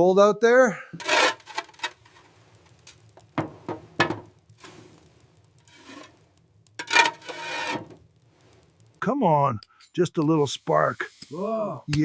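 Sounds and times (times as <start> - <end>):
rustling: 1.0 - 9.1.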